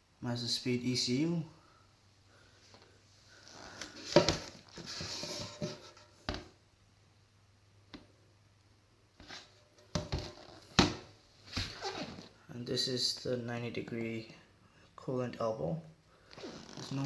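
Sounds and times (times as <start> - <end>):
rustling: 9.2 - 12.4.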